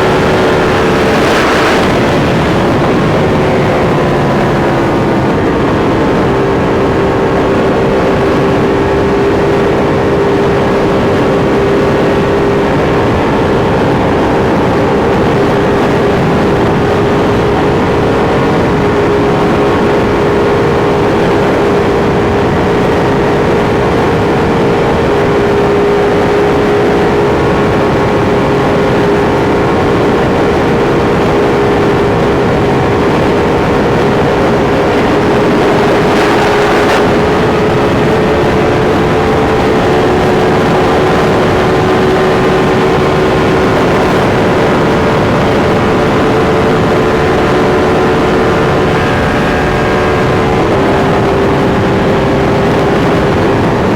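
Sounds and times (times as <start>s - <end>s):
motorcycle engine cruising: 0.0s - 53.9s
wind and road noise: 0.0s - 53.9s.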